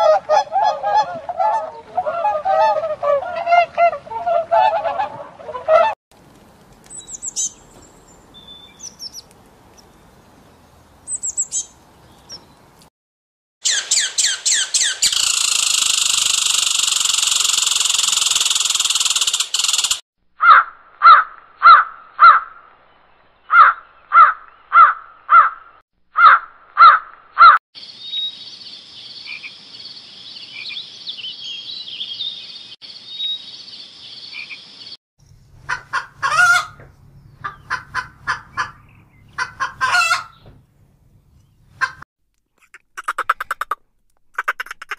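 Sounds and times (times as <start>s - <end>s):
small bird chirping: 6.9s - 12.6s, 13.6s - 20.0s
jackdaws calling: 13.6s - 22.6s, 23.4s - 27.6s, 35.6s - 40.6s.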